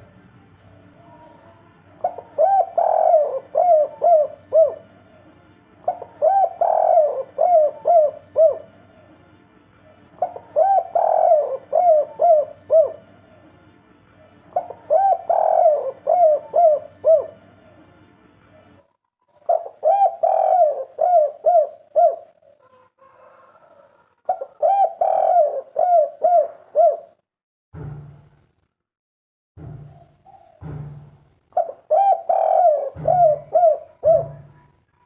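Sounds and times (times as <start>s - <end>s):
dove cooing: 2.0s - 5.2s, 5.8s - 8.8s, 10.2s - 13.2s, 14.5s - 17.5s, 19.3s - 27.2s, 31.6s - 34.7s.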